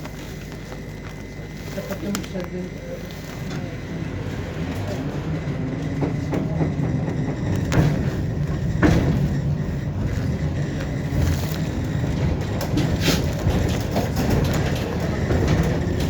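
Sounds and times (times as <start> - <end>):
tram wheels rumbling on rail: 0.0 - 16.0
sharp knocks: 6.0 - 9.8.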